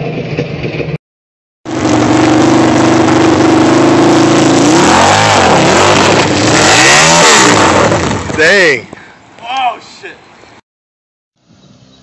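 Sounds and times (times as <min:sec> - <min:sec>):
motorcycle engine revving: 0:01.7 - 0:08.8.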